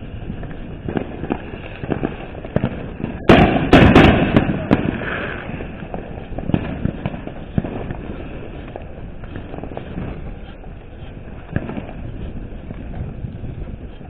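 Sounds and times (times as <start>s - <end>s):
firework pops and crackles: 0.0s - 14.0s
sharp firework bangs: 0.0s - 14.0s.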